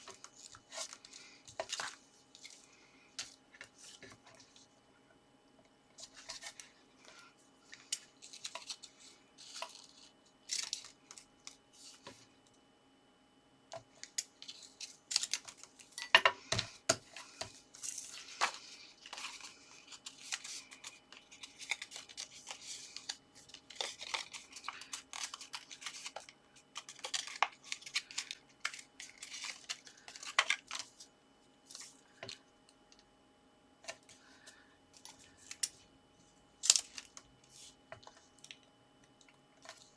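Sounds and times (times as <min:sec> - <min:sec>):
paper rustling and tearing: 0:17.2 - 0:30.9.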